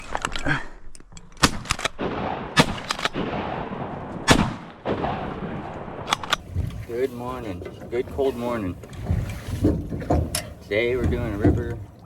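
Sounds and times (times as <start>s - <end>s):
shotgun shots: 1.4s - 6.4s.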